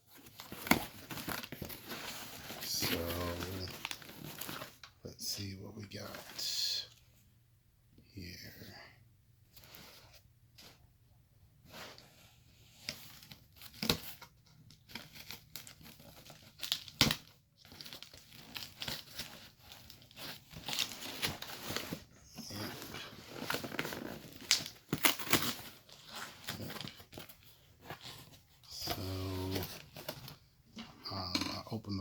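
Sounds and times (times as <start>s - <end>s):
packing material crinkling: 0.1s - 4.9s, 13.0s - 30.4s
packing tape tearing: 23.3s - 27.3s.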